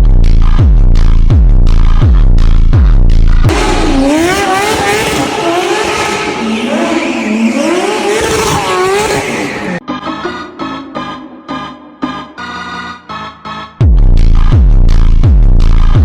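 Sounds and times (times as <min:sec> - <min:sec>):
bass-heavy music: 0:00.0 - 0:16.0
car engine running hard: 0:03.5 - 0:09.8
tyres squealing: 0:04.4 - 0:09.8.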